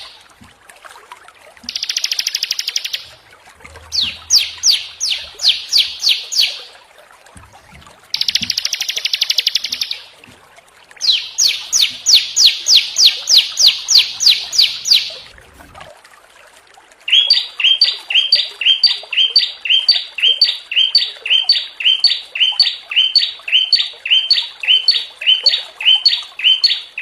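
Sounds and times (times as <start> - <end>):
small songbirds singing: 1.7 - 3.2, 3.8 - 6.7, 8.1 - 10.1, 11.0 - 15.2, 17.1 - 27.0
buzzy bird trill: 3.9 - 6.7, 11.0 - 15.2.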